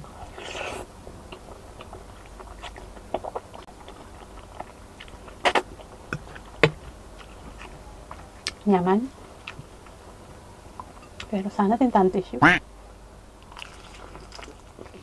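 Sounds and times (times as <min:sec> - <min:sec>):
person slurping and chewing spaghetti: 0:00.3 - 0:00.9, 0:13.5 - 0:15.0.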